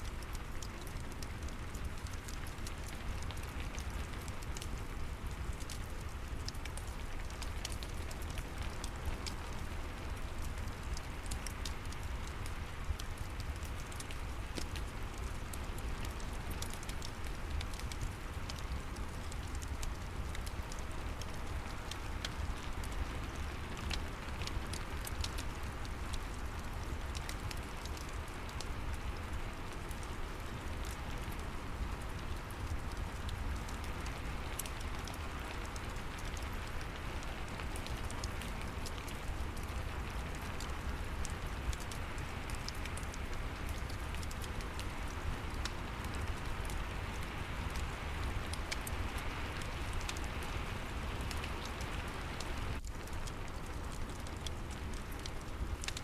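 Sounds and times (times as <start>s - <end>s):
fireplace crackling: 0.0s - 56.0s
steady rain falling: 0.0s - 56.0s.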